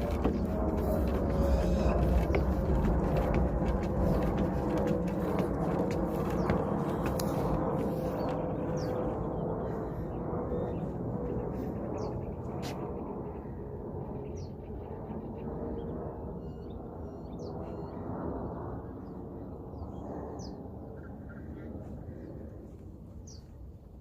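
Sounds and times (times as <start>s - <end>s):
small birds high calls: 0.0s - 13.5s
wind rumble on microphone: 0.0s - 24.0s.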